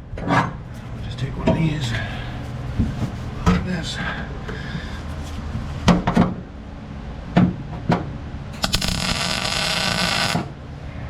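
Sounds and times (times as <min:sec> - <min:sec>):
welding hiss: 0:08.6 - 0:10.5.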